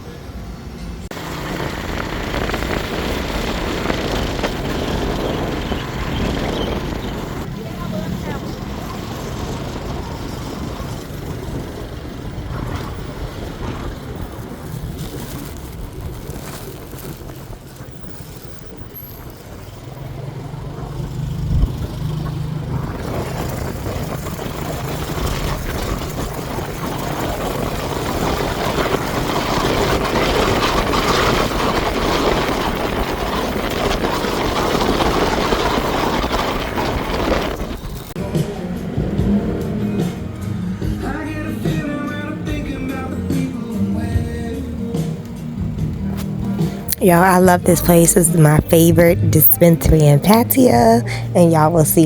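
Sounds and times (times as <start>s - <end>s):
road noise: 0.0s - 52.0s
low engine hum: 1.1s - 17.2s.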